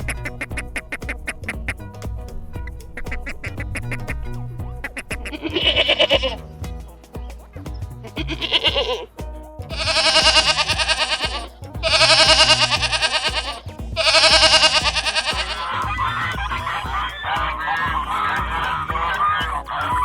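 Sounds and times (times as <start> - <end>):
background music with beat: 0.0 - 20.0
busy animal calls: 3.0 - 20.0
farm animal bleating: 4.8 - 6.5, 8.1 - 9.1, 9.7 - 20.0.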